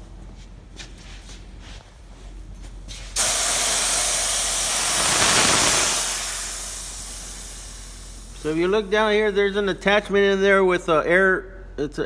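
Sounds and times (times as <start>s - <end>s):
compressed air hissing: 3.2s - 9.8s.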